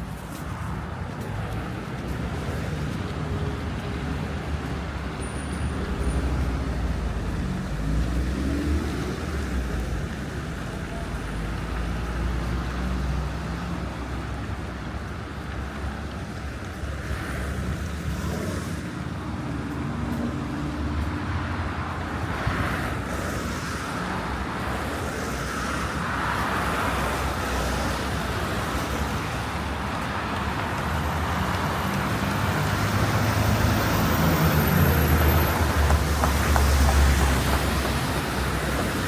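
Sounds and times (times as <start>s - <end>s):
passing car traffic: 0.0s - 39.0s.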